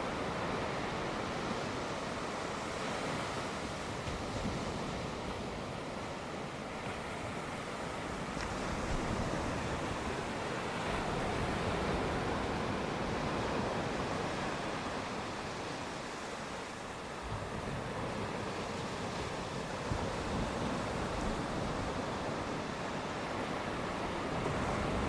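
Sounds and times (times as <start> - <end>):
sea waves washing onto shore: 0.0 - 25.0.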